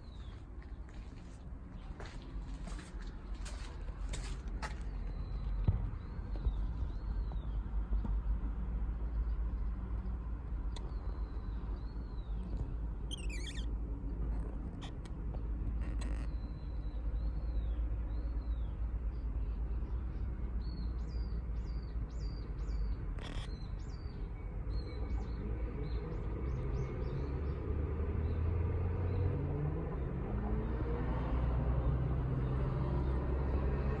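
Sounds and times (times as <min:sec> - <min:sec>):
small bird chirping: 0:10.8 - 0:13.7, 0:21.2 - 0:24.2
motor vehicle approaching: 0:25.2 - 0:34.0.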